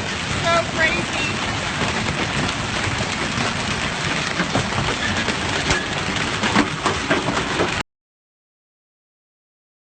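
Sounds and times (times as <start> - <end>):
hail falling: 0.0 - 7.8.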